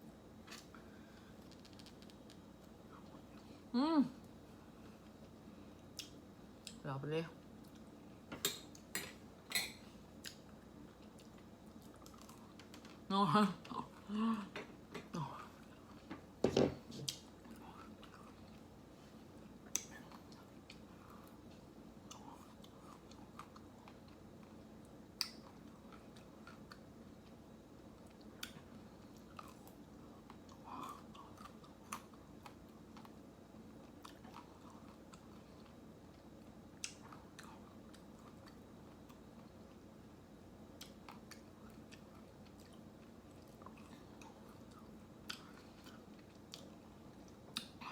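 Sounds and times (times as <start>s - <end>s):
chewing ice cream: 10.2s - 13.0s, 17.1s - 39.9s, 40.6s - 47.9s.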